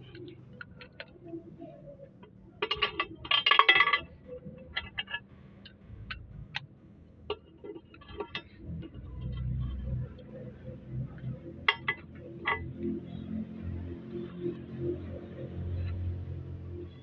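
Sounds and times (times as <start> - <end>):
metal tools clinking: 2.6 - 4.1.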